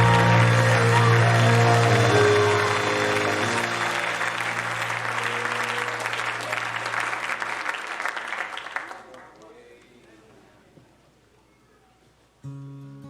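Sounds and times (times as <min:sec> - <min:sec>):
band chord ringing: 0:00.0 - 0:06.4
congregation applauding: 0:00.0 - 0:10.4.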